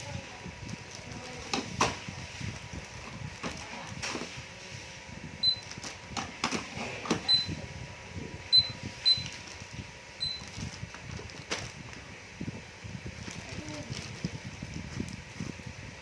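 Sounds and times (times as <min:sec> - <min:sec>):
toy cash register beeping: 0:10.2 - 0:10.5.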